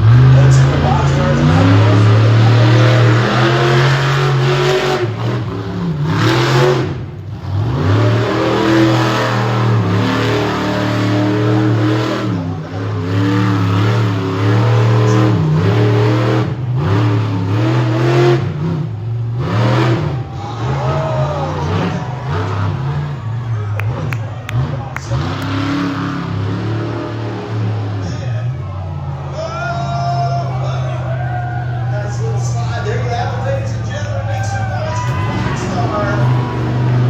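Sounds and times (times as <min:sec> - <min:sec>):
truck engine revving hard: 0:00.0 - 0:37.0.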